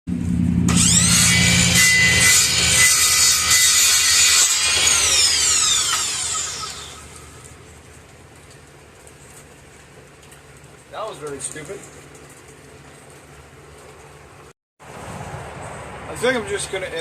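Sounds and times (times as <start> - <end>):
power saw cutting wood: 0.6 - 7.6.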